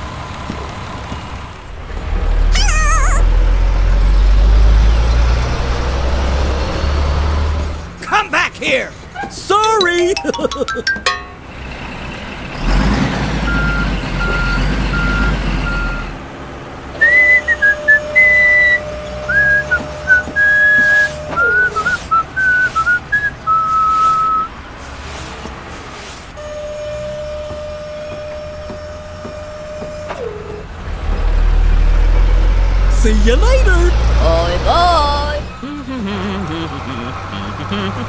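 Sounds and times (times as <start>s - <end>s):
truck engine running: 0.0s - 25.7s, 27.0s - 38.0s
whistled tune: 2.6s - 3.3s, 17.0s - 24.5s.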